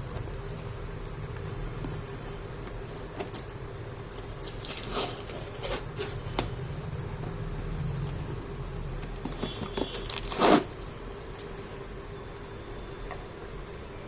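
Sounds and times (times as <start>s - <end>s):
low steady hum: 0.0s - 14.0s
packaging being torn open: 10.0s - 10.8s.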